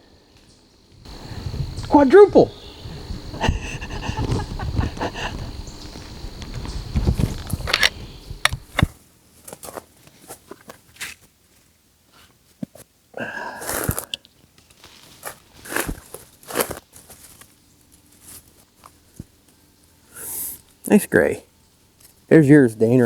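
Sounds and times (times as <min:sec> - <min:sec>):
footsteps crunching through dry leaves: 0:04.6 - 0:08.7, 0:14.7 - 0:19.2.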